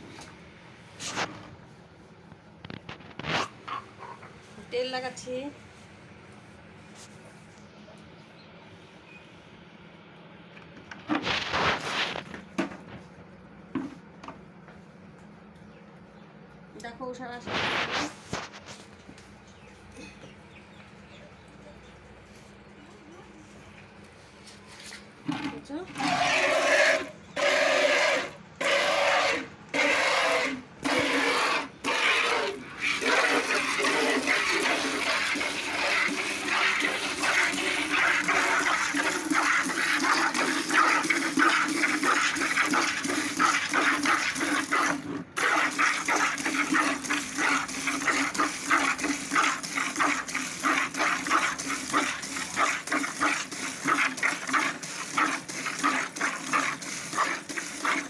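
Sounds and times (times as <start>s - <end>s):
milk squirting into a bucket: 11.1s - 12.5s, 24.7s - 58.0s.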